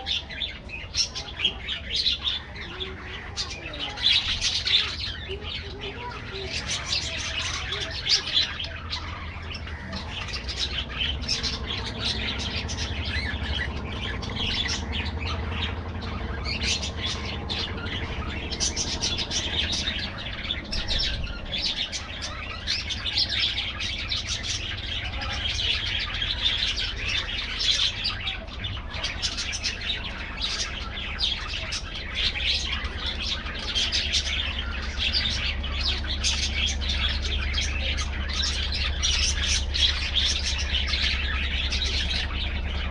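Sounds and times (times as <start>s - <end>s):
budgerigars chattering and chirping: 0.0s - 42.9s.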